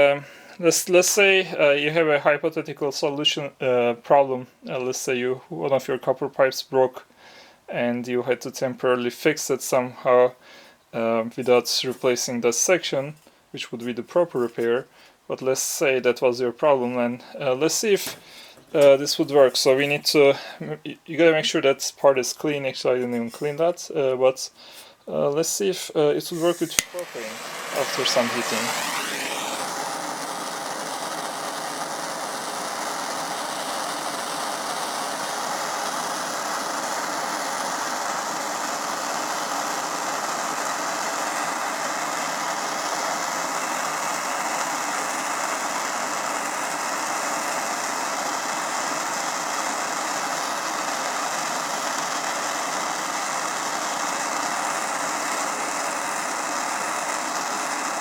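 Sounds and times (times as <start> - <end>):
torch flame hissing: 0.0 - 1.4, 17.2 - 20.5, 24.4 - 58.0.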